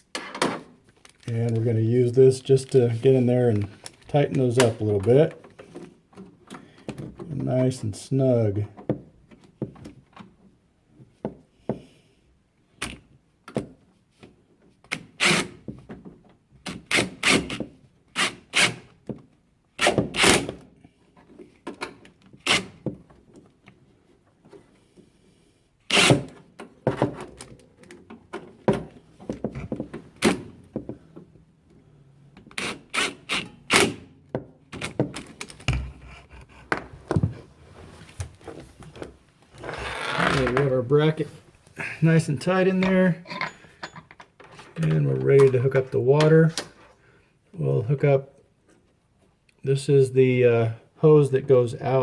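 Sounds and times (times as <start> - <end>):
knocks and clicks of handling parts: 3.6 - 7.6, 8.6 - 12.0, 12.8 - 25.1, 26.2 - 37.5, 42.6 - 47.0
tools being set down: 42.8 - 44.8.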